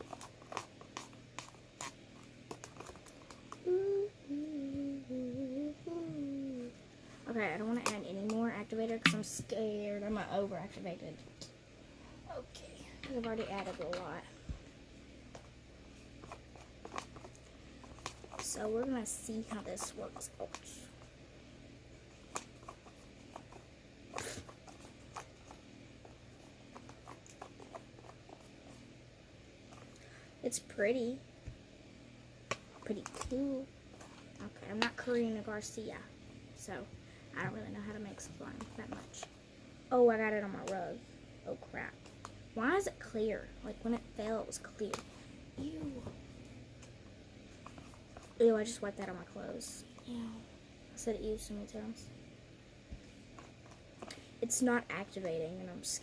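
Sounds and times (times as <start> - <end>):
slime stirred in a bowl: 0.0 - 3.6
girl humming: 3.6 - 6.8
sticky clicks and wet pops: 9.0 - 9.3.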